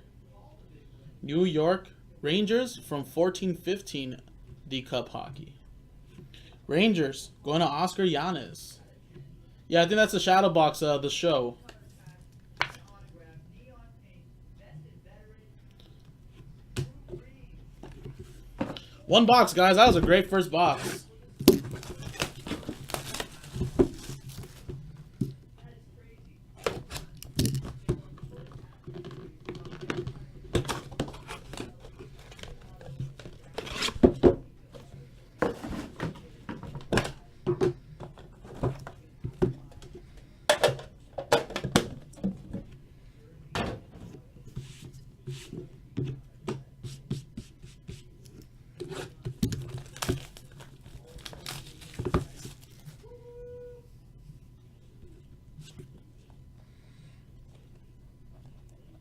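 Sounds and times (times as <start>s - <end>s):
steady low hum: 0.0s - 59.0s
cardboard packaging handled and torn: 21.4s - 24.7s, 49.1s - 53.0s.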